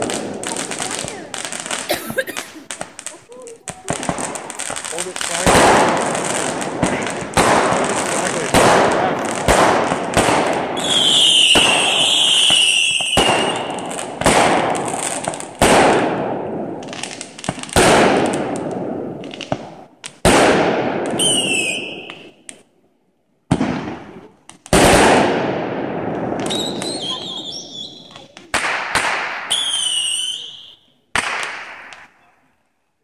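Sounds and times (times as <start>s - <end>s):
fireworks bangs with echo: 0.0s - 22.7s, 23.4s - 32.3s
whistling fireworks shrieking: 2.7s - 15.2s, 21.1s - 22.4s, 26.4s - 32.5s.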